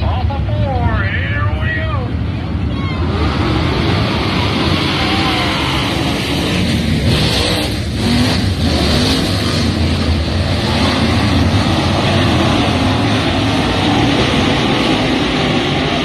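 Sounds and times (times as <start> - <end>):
steady rush of noise: 0.0 - 16.0
vehicle engine running: 0.0 - 16.0.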